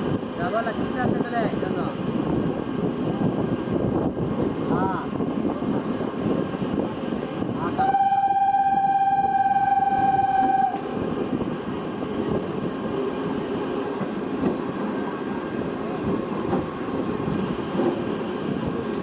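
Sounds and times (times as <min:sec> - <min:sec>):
train rumbling past: 0:00.0 - 0:19.0
train horn blast: 0:07.8 - 0:10.9.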